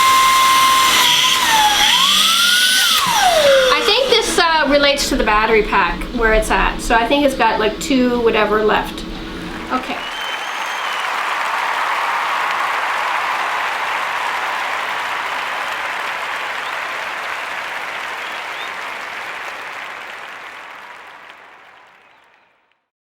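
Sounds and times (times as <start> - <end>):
crowd applause: 0.0 - 4.0, 9.7 - 22.7.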